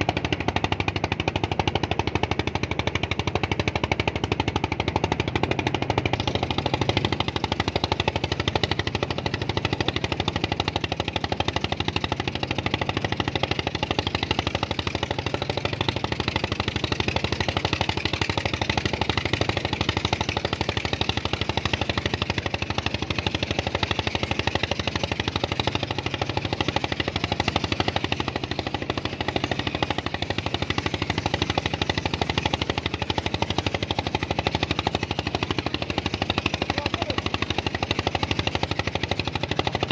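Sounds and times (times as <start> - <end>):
engine knocking steadily: 0.0 - 39.9.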